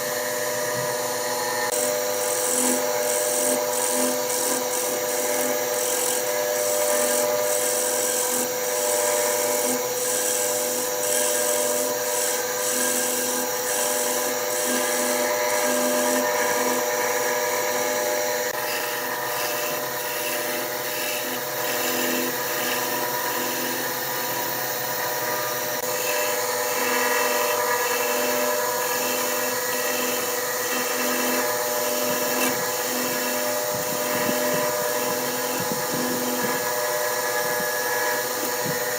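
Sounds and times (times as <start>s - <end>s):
turning tool cutting wood: 0.0s - 38.9s
wood lathe motor hum: 0.0s - 38.9s.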